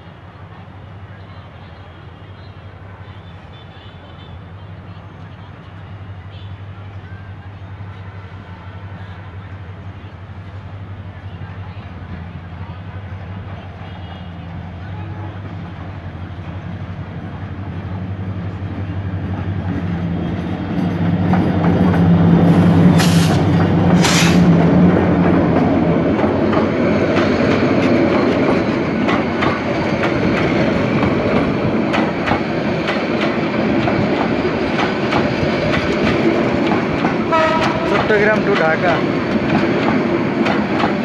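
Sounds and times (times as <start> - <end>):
locomotive engine hum: 0.0 - 41.0
clickety-clack of train wheels: 18.4 - 41.0.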